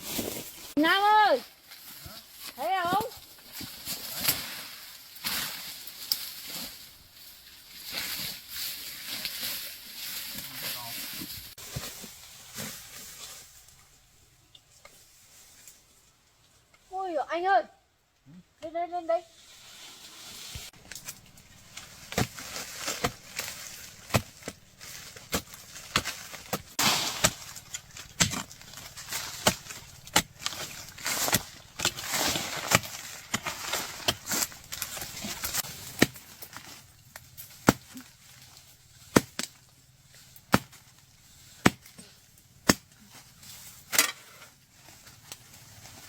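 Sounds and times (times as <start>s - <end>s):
soil scraping and crumbling: 0.0s - 14.0s, 19.3s - 46.0s
digging tool chopping into earth: 21.9s - 36.5s, 37.6s - 38.0s, 39.1s - 39.5s, 40.5s - 40.8s, 41.6s - 42.0s, 42.6s - 42.9s.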